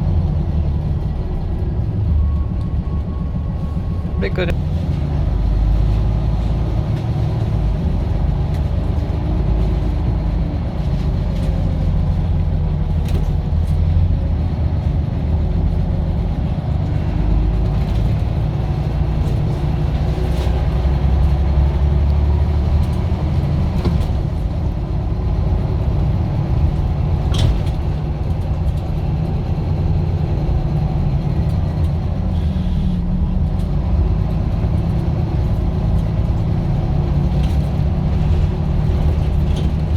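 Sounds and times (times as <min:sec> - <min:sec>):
diesel bus engine drone: 0:00.0 - 0:39.9.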